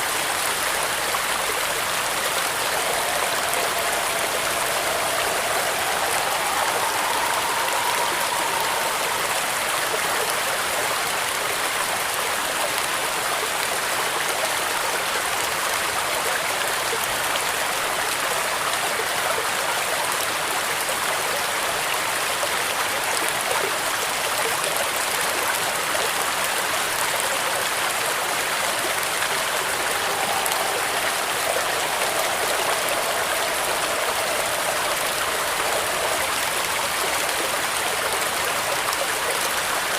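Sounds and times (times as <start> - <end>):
heavy rain with wind: 0.0 - 39.9
faint wavering whistling tone: 0.4 - 12.1, 27.2 - 39.9.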